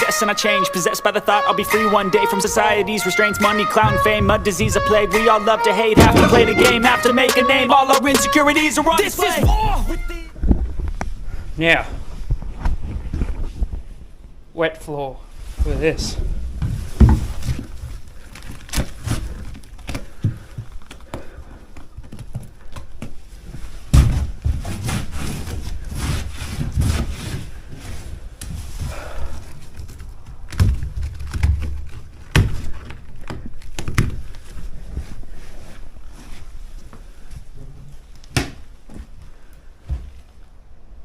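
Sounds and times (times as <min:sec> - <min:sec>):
low scraping and rumbling: 0:02.4 - 0:07.9
wooden thuds and knocks: 0:03.8 - 0:05.2, 0:06.0 - 0:07.0.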